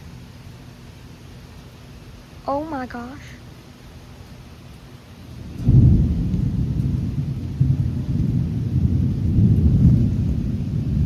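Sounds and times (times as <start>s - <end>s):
thunder crack and rumble: 5.3s - 11.0s.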